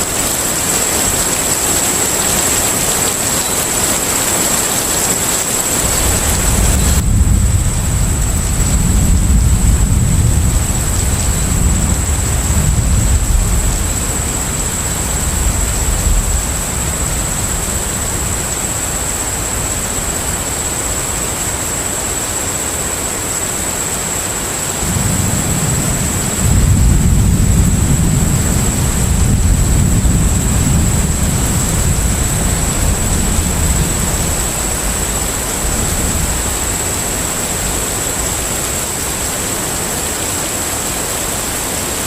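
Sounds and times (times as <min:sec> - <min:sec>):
wind and water rushing: 0:00.0 - 0:42.0
deep engine rumble: 0:05.8 - 0:20.7, 0:25.4 - 0:37.8.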